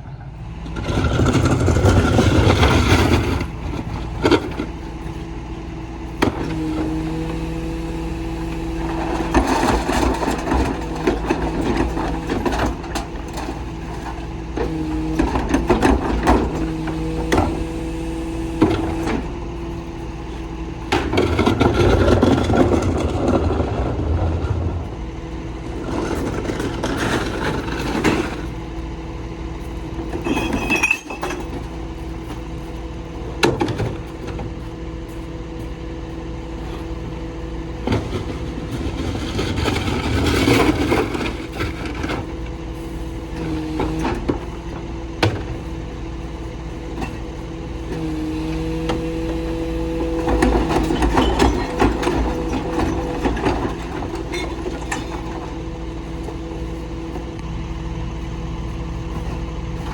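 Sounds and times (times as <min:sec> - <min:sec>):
garbage truck humming: 0:00.0 - 0:59.9.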